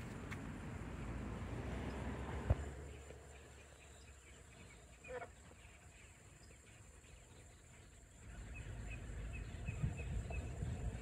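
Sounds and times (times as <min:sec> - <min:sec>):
bird call: 0:02.9 - 0:11.0.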